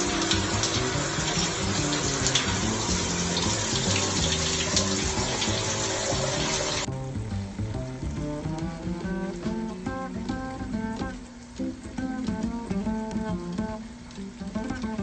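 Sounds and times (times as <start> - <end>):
water running from tap: 0.0 - 6.9
background music: 0.0 - 15.0.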